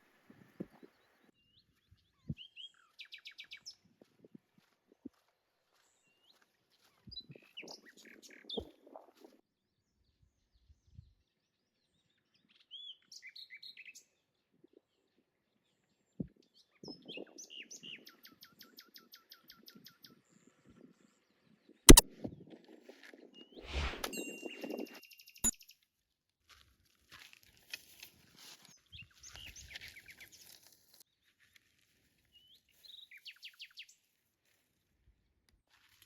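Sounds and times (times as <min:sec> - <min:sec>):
sharp click: 0:23.7 - 0:24.1.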